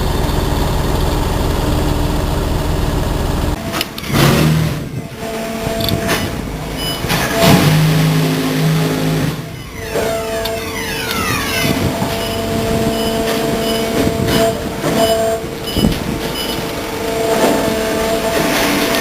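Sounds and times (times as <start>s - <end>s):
truck engine drone with whine: 0.0s - 19.0s.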